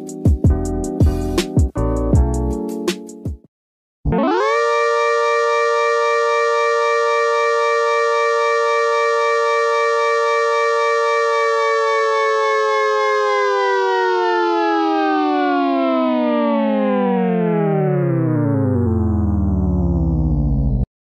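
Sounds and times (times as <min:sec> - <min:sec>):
tornado siren: 0:04.1 - 0:20.8.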